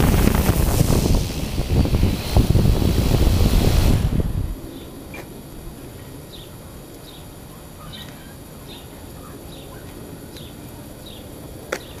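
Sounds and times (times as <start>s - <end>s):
low outdoor rumble: 0.0s - 12.0s
small bird chirping: 4.7s - 12.0s.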